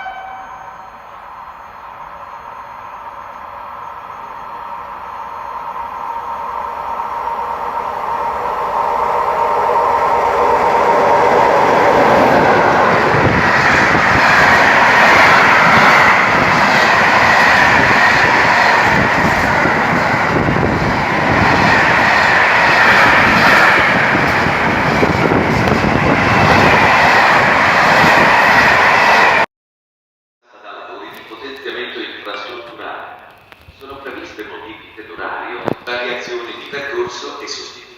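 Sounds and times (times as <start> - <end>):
train wheels on rails: 0.0 - 29.4.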